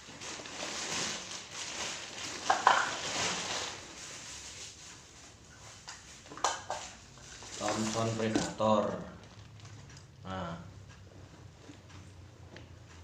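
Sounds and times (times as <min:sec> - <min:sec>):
packaging rustling and crinkling: 0:00.0 - 0:10.2
items clattering down: 0:00.2 - 0:03.8, 0:06.2 - 0:09.8.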